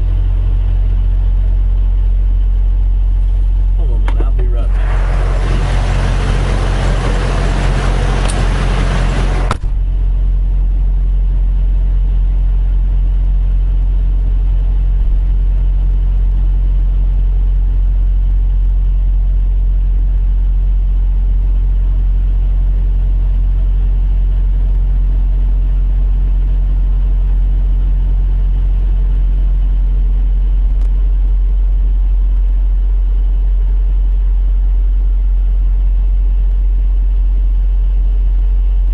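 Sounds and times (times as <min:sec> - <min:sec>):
diesel truck engine idling: 0:00.0 - 0:38.9
loud rush of noise: 0:04.6 - 0:09.7
brief thump: 0:09.5 - 0:09.9.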